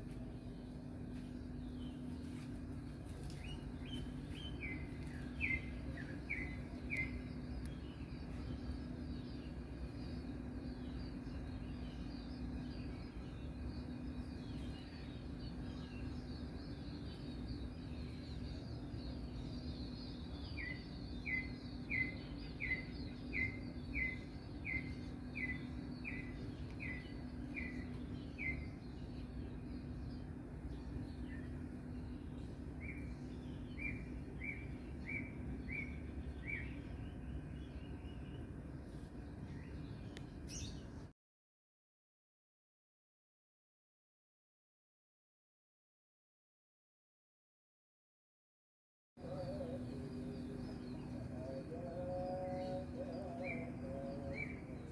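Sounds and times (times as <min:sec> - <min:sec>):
steady low hum: 0:00.0 - 0:41.1, 0:49.2 - 0:54.9
faint chirping: 0:49.2 - 0:54.9.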